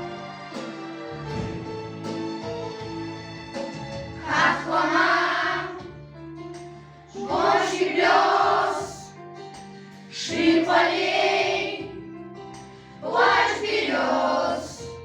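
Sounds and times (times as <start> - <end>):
instrumental backing track: 0.0 - 15.0
children's choir singing: 4.2 - 5.8, 7.2 - 9.1, 10.2 - 12.0, 13.0 - 14.9.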